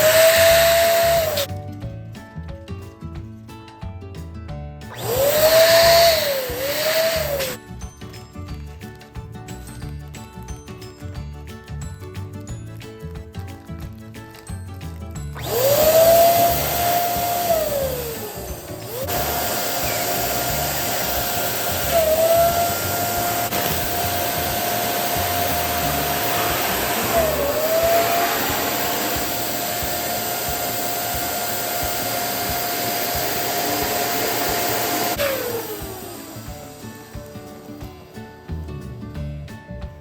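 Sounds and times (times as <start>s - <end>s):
electric air pump whining: 0.0s - 1.5s, 4.9s - 7.6s, 15.4s - 38.4s
faint background music: 0.0s - 40.0s.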